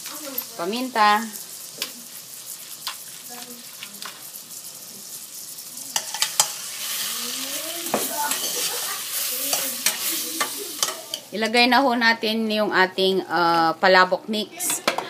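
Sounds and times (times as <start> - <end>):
shrimp sizzling in butter: 0.0 - 11.4.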